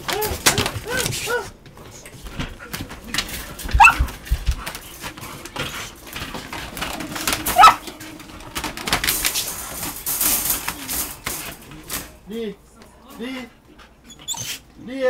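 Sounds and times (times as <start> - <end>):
rustling: 0.0 - 12.3
dog yelping: 3.8 - 4.1, 7.4 - 7.9.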